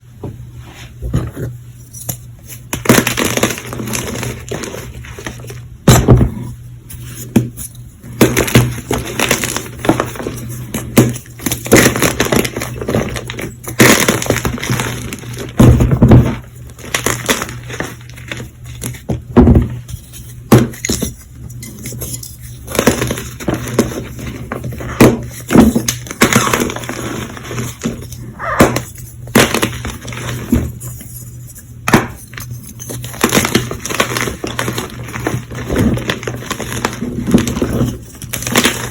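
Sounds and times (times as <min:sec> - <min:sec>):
chalk blocks crunching and snapping: 0:20.5 - 0:31.2, 0:31.9 - 0:38.9.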